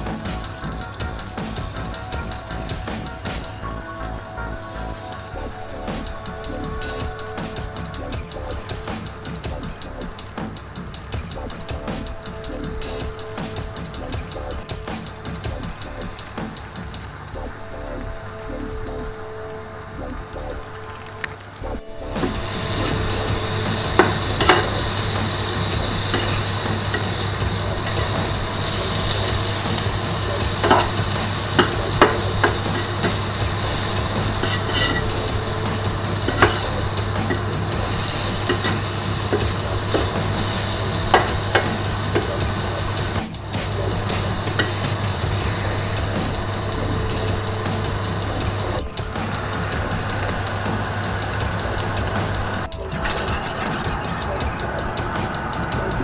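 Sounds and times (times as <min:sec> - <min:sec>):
food sizzling on a grill plate: 0:22.2 - 0:53.2
metal spatulas scraping and tapping: 0:23.6 - 0:43.1, 0:44.5 - 0:45.0, 0:52.7 - 0:54.6.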